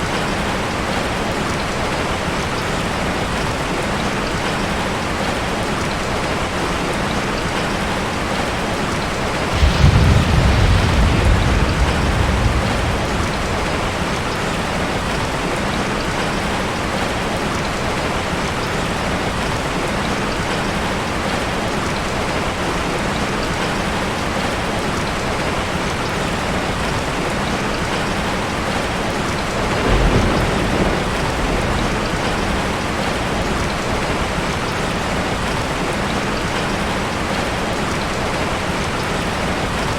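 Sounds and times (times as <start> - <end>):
steady rain: 0.0 - 39.9
thunder rumbling: 9.4 - 16.4, 29.4 - 36.0.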